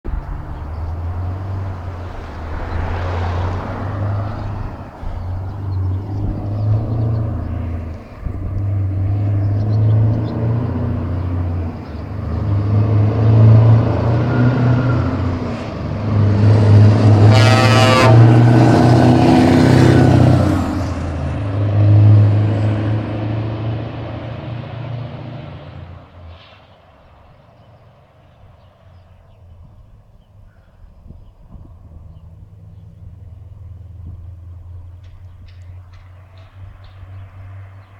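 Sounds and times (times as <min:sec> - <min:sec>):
diesel truck engine: 0:00.0 - 0:29.0, 0:31.4 - 0:37.9
truck horn blast: 0:12.7 - 0:21.0.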